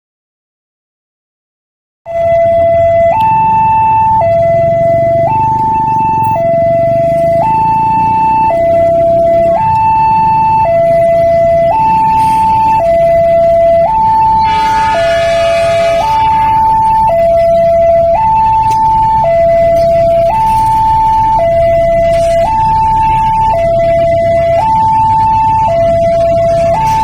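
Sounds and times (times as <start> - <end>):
two-tone electronic alarm: 2.1 - 27.0
chord of higher tones: 14.2 - 17.9.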